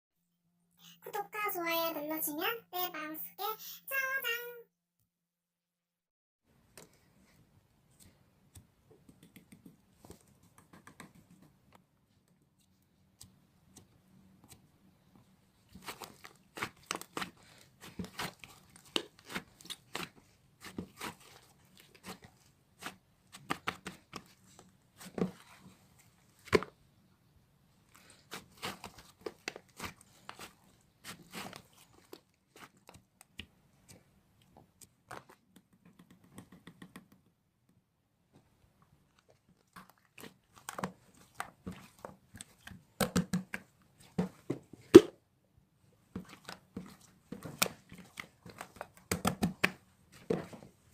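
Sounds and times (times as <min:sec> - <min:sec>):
crinkly material crumpling: 0:15.7 - 0:23.0.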